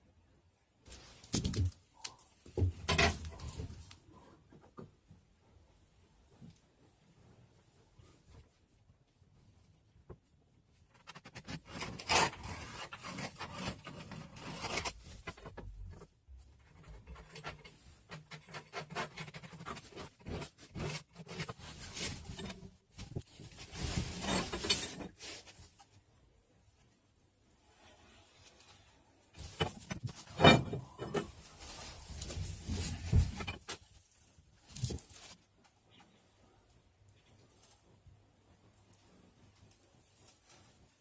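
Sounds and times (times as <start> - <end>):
scraping on foam board: 11.0 - 16.0.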